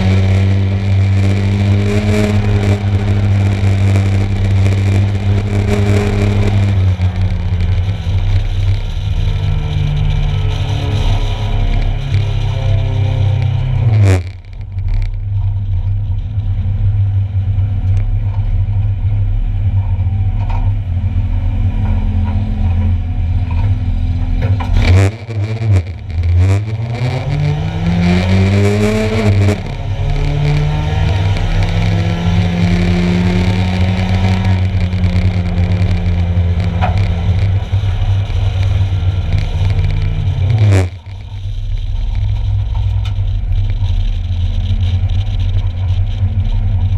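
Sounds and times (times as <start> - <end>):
engine accelerating: 0.0 - 46.9
race car engines running: 0.0 - 46.9.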